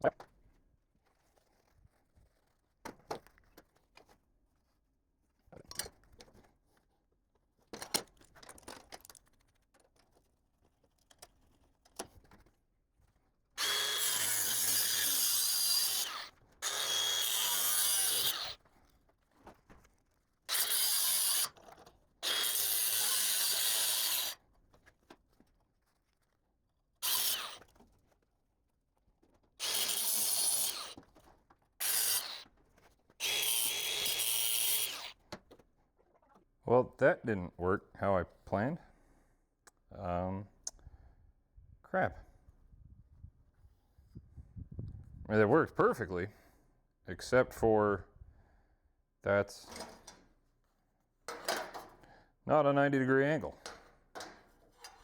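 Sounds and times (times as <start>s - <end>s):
power tool cutting steel tubing: 13.6s - 18.6s, 20.5s - 24.4s, 27.0s - 27.8s, 29.6s - 31.1s, 31.8s - 32.5s, 33.2s - 35.2s.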